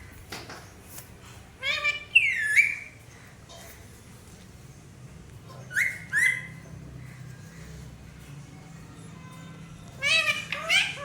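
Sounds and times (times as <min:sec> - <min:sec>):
parrot high calls: 0:05.7 - 0:06.6, 0:10.0 - 0:11.0.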